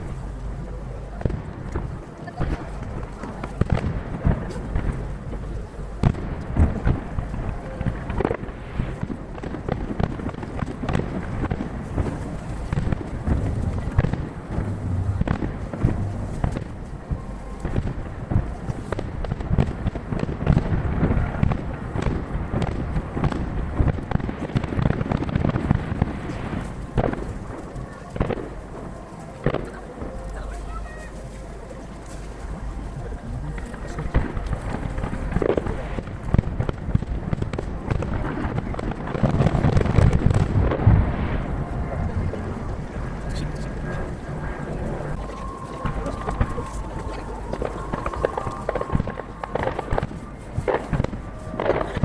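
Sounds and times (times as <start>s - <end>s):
continuous low rumble: 0.0s - 52.0s
distant fireworks bursting: 0.0s - 52.0s.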